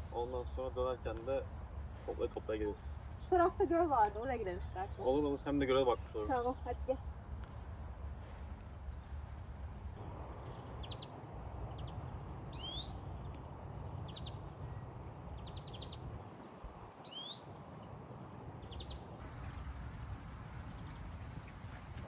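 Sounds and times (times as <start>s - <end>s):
small birds chirping: 18.6s - 22.0s
low rushing background: 19.2s - 22.0s
rising slurred bird calls: 19.2s - 22.0s.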